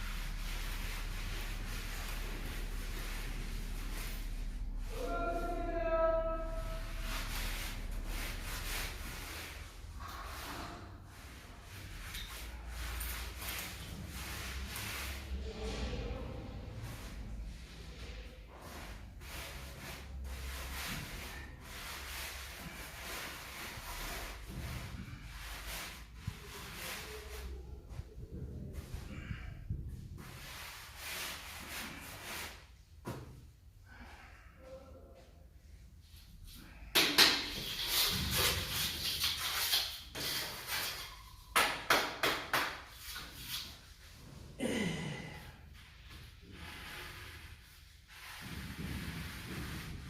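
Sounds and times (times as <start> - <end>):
hand tool scraping mortar: 37.0 - 41.3.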